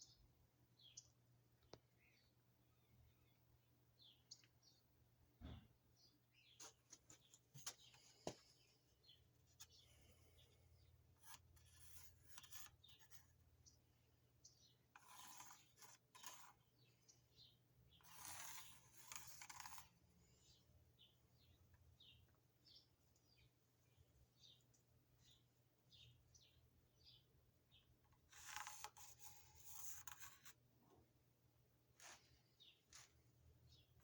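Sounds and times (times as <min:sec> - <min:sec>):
faint rubbing and scraping: 0:06.5 - 0:13.4, 0:14.9 - 0:17.0, 0:17.9 - 0:20.6, 0:28.1 - 0:31.1, 0:32.0 - 0:33.8.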